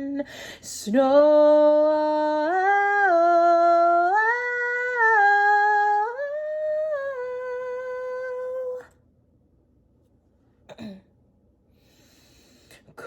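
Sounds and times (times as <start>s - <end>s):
woman singing wordless vowel: 0.0s - 9.0s.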